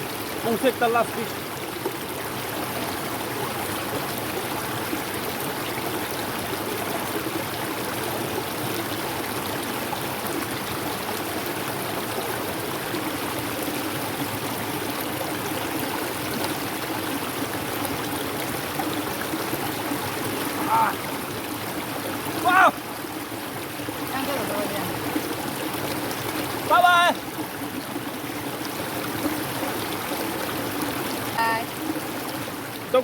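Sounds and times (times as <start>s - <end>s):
river water flowing: 0.0s - 33.0s.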